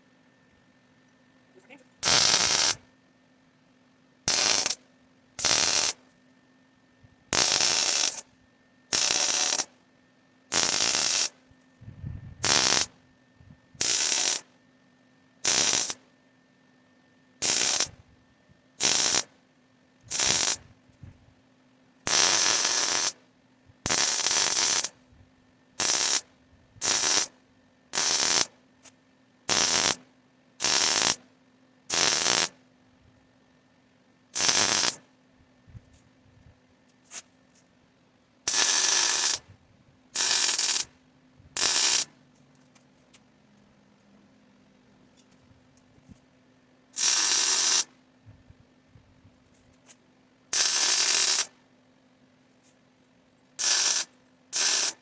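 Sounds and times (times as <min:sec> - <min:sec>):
faint steady hum: 0:00.0 - 0:55.0
ratcheting tool bursts: 0:02.0 - 0:02.8, 0:04.3 - 0:04.8, 0:05.4 - 0:06.0, 0:07.4 - 0:08.2, 0:08.9 - 0:09.7, 0:10.5 - 0:11.3, 0:12.4 - 0:12.9, 0:13.8 - 0:14.5, 0:15.4 - 0:16.0, 0:17.4 - 0:18.0, 0:18.8 - 0:19.3, 0:20.1 - 0:20.6, 0:23.9 - 0:24.9, 0:25.8 - 0:26.2, 0:26.8 - 0:27.3, 0:30.6 - 0:31.2, 0:34.4 - 0:35.0, 0:38.5 - 0:39.4, 0:40.2 - 0:40.9, 0:41.6 - 0:42.1, 0:47.0 - 0:47.9, 0:50.6 - 0:51.5, 0:53.6 - 0:55.0.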